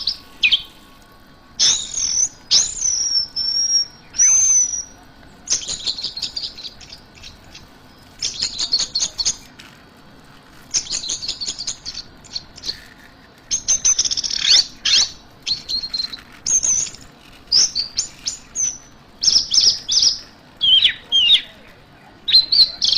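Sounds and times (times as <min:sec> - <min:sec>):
thrush singing high chirping notes: 0:00.0 - 0:09.5, 0:10.7 - 0:21.6.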